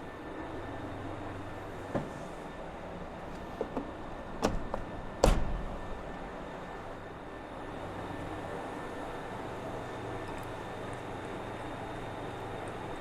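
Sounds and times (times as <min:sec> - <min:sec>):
steady low hum: 0:00.0 - 0:13.0
sharp knocks on metal: 0:03.6 - 0:06.4
heavy thud: 0:04.4 - 0:06.5.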